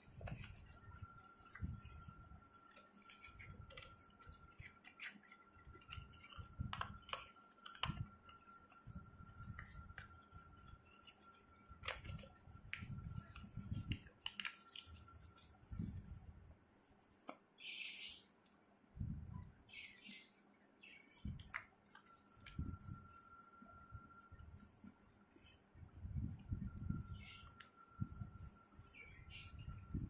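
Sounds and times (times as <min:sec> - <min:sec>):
paper rustling and crackling: 0:00.0 - 0:16.2.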